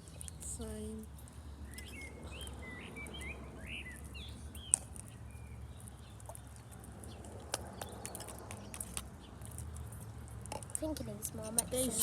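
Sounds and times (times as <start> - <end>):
bird chirps: 1.6 - 9.5
sharp clicks and ticks: 3.9 - 12.0.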